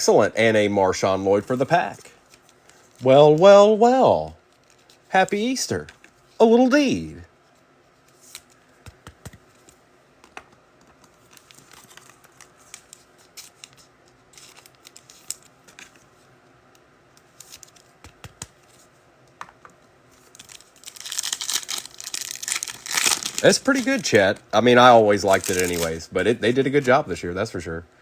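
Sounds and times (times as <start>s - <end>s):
foil wrapper crinkling and tearing: 20.3s - 24.4s, 25.1s - 26.0s.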